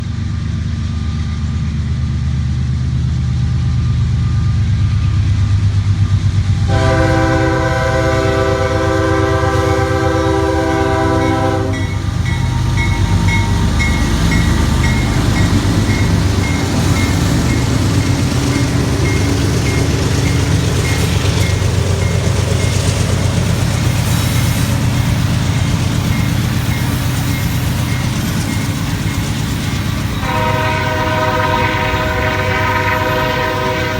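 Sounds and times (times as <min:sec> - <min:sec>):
diesel locomotive engines rumbling: 0:00.0 - 0:33.9
train wheel clatter: 0:05.1 - 0:33.9
train air horn blast: 0:06.7 - 0:12.0, 0:30.2 - 0:33.9.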